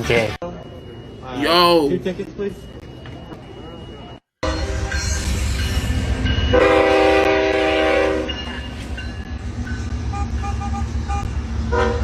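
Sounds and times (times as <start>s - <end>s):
passing train rumble: 4.4s - 12.0s
train horn chord: 6.5s - 8.3s, 11.7s - 12.0s.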